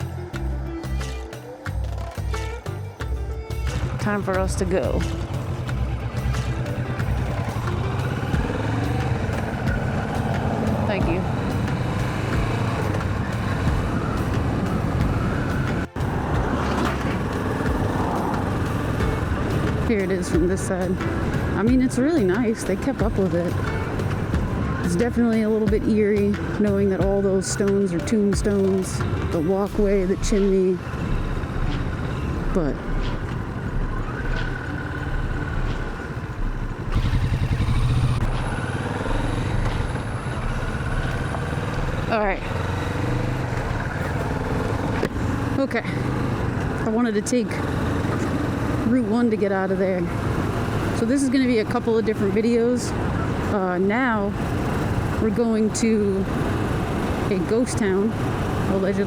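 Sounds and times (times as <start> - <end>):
motorcycle engine rumble: 0.0 - 59.0
road and wind noise: 0.0 - 59.0.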